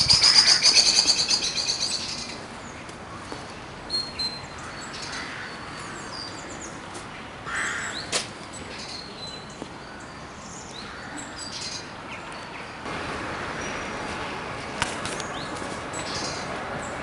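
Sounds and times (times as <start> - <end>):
small birds chirping: 0.0 - 12.8, 15.0 - 17.0
outdoor background rush: 0.0 - 17.0.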